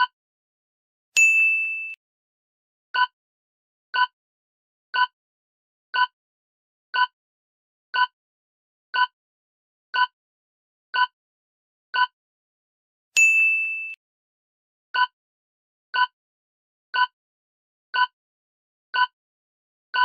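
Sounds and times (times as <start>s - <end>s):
clock-like timer ticks: 18.0s - 18.2s, 19.0s - 19.2s.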